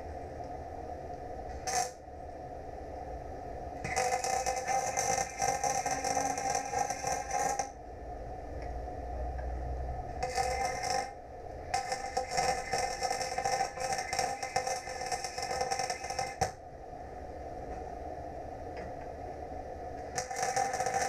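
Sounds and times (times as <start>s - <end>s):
welding arc crackling and buzzing: 1.5s - 2.0s, 3.8s - 7.8s, 10.0s - 16.6s, 20.0s - 21.0s.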